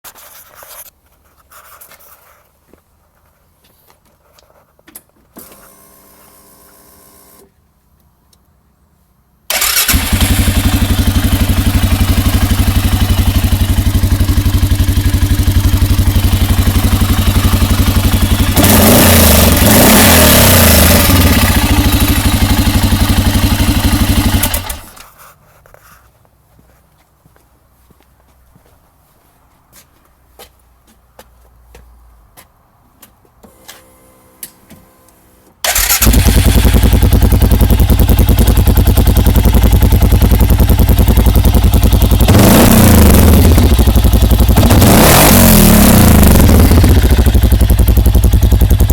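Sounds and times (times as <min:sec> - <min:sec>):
atv engine starting and idling: 0:09.5 - 0:25.1, 0:35.6 - 0:48.9.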